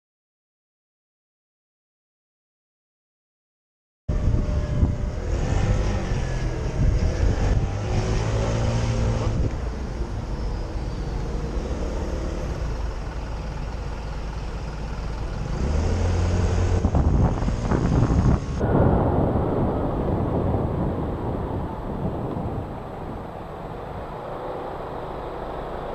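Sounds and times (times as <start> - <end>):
road and wind noise: 4.1 - 25.9
motorcycle engine accelerating: 15.3 - 25.9.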